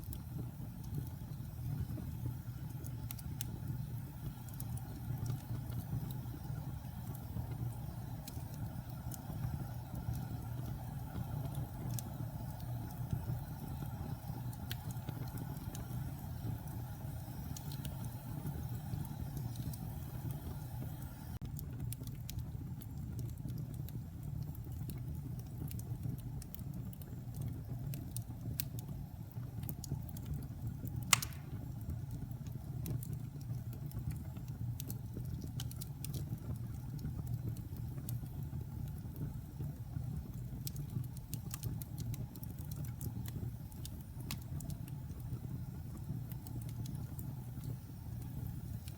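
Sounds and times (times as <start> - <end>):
wood fire crackling: 0.0 - 48.9
sharp pop from fire: 31.1 - 31.8.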